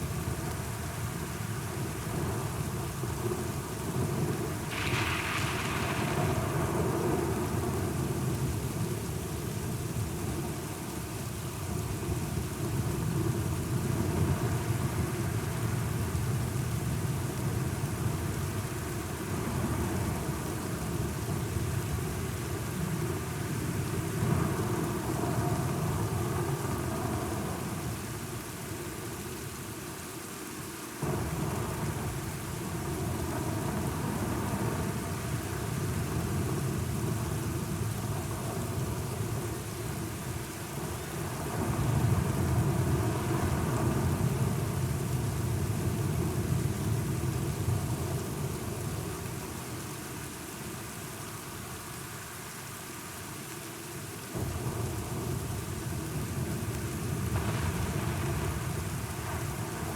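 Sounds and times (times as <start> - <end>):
steady rain: 0.0 - 59.9
rolling low thunder: 4.0 - 8.9, 54.4 - 59.9.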